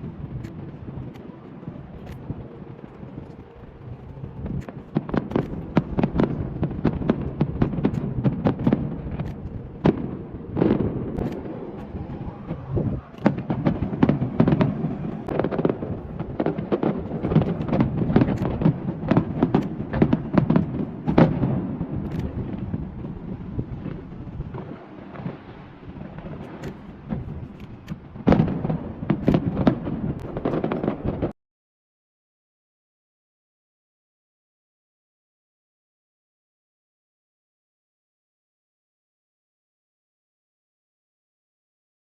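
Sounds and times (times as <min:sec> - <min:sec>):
low rumble: 0:00.0 - 0:24.7
fireworks bangs and crackles: 0:00.0 - 0:31.4.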